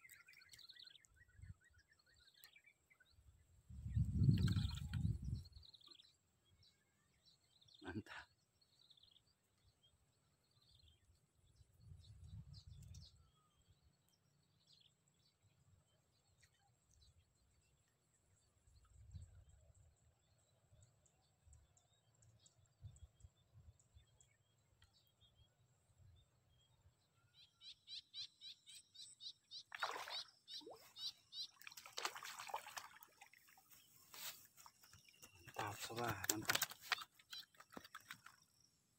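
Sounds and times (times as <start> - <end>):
small bird chirping: 27.3 - 38.8
fish splashing at water surface: 29.7 - 30.2, 31.6 - 33.6.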